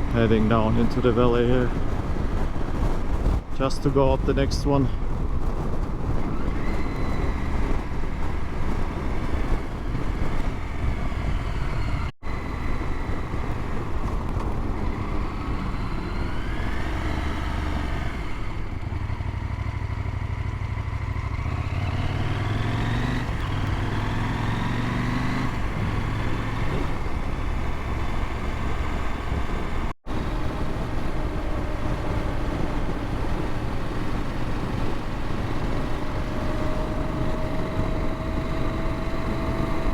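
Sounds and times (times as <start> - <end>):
motorcycle engine revving: 0.0 - 39.9
road noise: 0.0 - 39.9.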